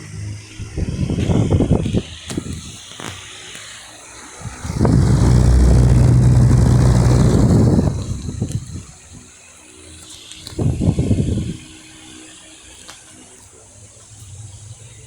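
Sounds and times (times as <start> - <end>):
fan airflow buffeting microphone: 4.4 - 9.2.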